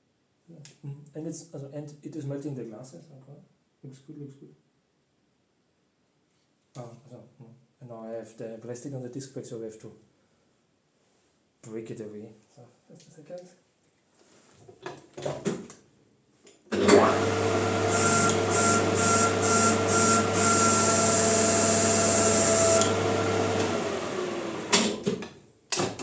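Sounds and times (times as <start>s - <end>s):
lathe motor humming and whining: 16.8s - 25.0s.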